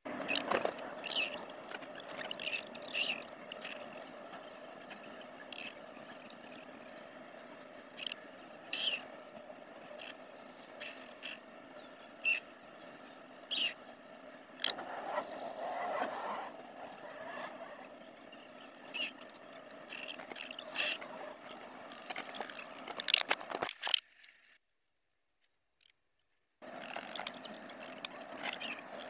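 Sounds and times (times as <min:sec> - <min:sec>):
steady low hum: 0:00.0 - 0:23.2
high bird chirps: 0:00.2 - 0:23.6, 0:26.6 - 0:29.0.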